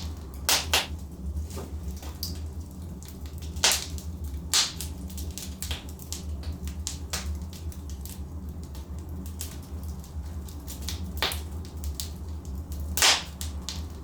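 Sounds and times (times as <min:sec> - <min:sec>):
burning logs popping and snapping: 0:00.0 - 0:14.0
low fire rumble: 0:00.0 - 0:14.0.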